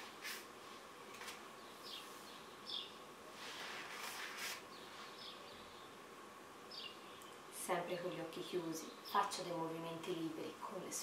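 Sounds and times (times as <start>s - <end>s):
soft hiss: 0.0s - 11.0s
bird chirping: 1.6s - 3.0s, 4.7s - 6.0s, 6.7s - 7.4s.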